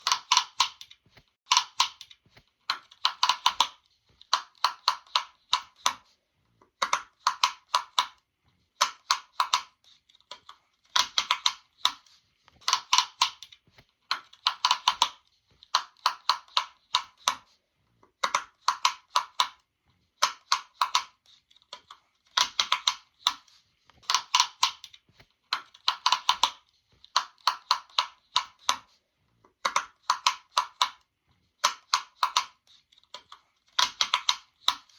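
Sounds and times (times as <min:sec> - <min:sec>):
sharp popping clicks: 0:00.0 - 0:06.0, 0:08.8 - 0:17.4, 0:21.8 - 0:28.9, 0:33.2 - 0:34.9.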